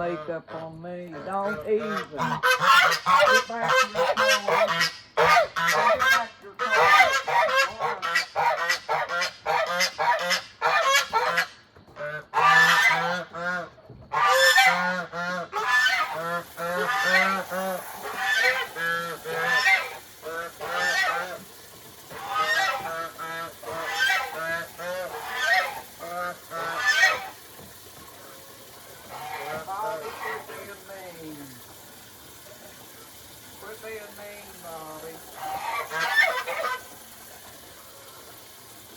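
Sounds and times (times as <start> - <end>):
goose honking: 0.0 - 21.5, 22.1 - 27.4, 29.0 - 31.3, 35.3 - 36.9.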